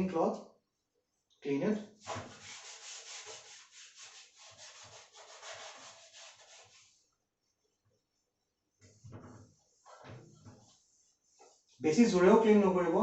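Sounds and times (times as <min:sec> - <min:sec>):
cloth rubbing on glass: 0:02.0 - 0:07.0, 0:08.8 - 0:12.5.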